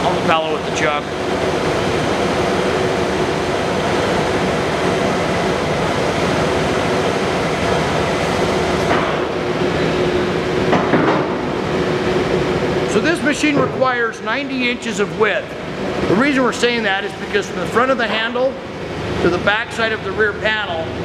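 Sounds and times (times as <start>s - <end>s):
lathe running: 0.0s - 13.4s.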